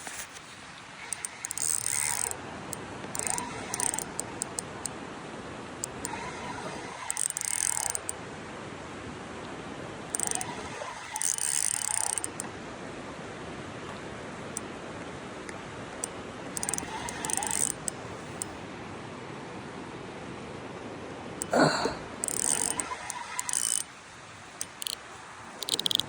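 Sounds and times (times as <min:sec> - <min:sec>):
fishing reel whirring and clicking: 0:01.0 - 0:02.4, 0:03.0 - 0:05.0, 0:05.8 - 0:08.2, 0:10.1 - 0:12.5, 0:16.5 - 0:18.6, 0:22.2 - 0:23.9, 0:24.6 - 0:25.0, 0:25.6 - 0:26.0.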